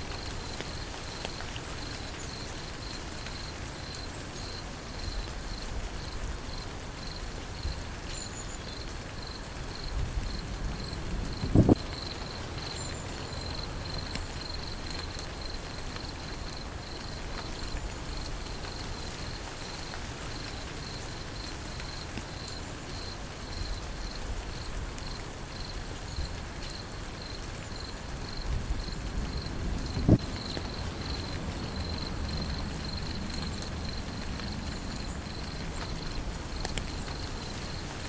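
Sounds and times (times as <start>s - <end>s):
rain falling: 0.0s - 38.0s
insect chirping: 0.1s - 5.2s, 16.5s - 24.2s, 25.6s - 38.0s.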